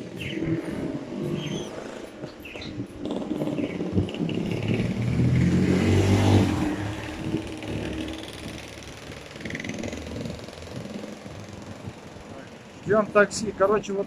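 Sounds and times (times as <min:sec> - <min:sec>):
car driving past: 0:04.5 - 0:10.5.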